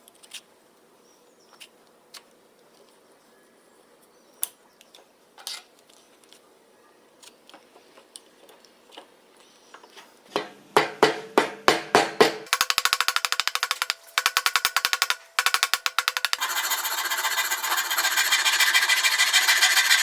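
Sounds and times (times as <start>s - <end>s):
hammer striking metal: 10.4s - 16.4s.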